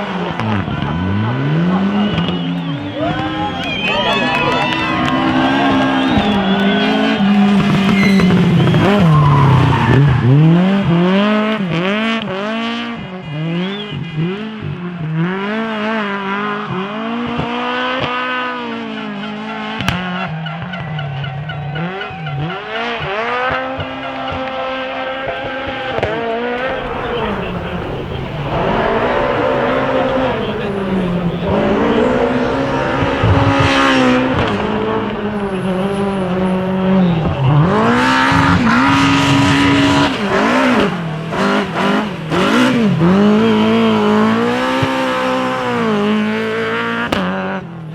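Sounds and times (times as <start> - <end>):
car engine revving hard: 0.0 - 20.1, 21.8 - 47.8
tyre squeal: 0.1 - 10.6, 26.6 - 40.0.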